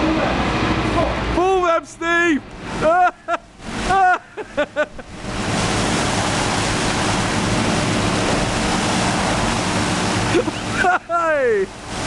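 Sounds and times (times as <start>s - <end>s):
truck low hum: 0.0s - 12.0s
water gushing from a truck: 0.0s - 12.0s.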